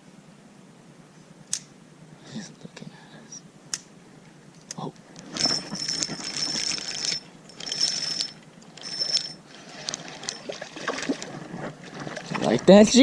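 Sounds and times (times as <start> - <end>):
fishing reel whirring: 5.4 - 11.2.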